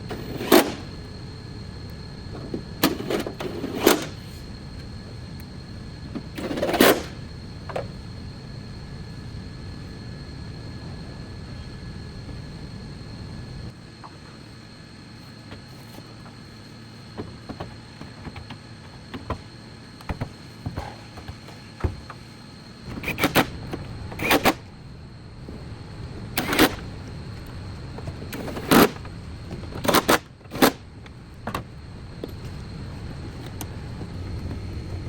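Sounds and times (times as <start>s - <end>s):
workshop clicks and knocks: 1.8s - 8.0s, 17.2s - 24.7s.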